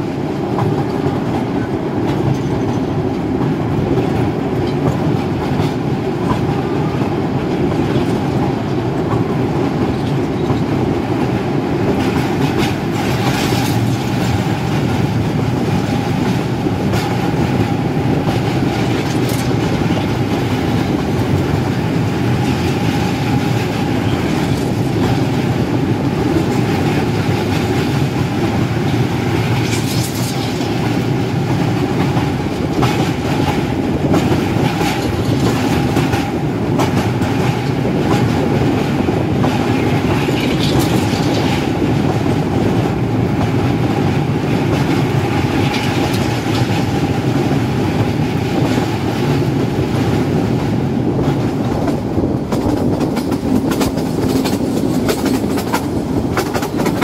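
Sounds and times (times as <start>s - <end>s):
train wheels rumbling on bridge: 0.0s - 57.0s
wheels clicking over rail joints: 39.4s - 42.2s, 51.2s - 57.0s.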